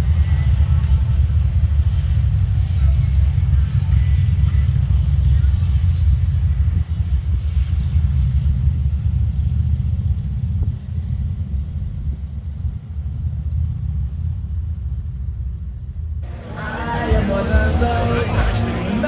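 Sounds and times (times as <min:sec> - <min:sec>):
road noise: 0:00.0 - 0:09.6, 0:16.2 - 0:19.0
motorcycle engine rumble: 0:00.0 - 0:12.7.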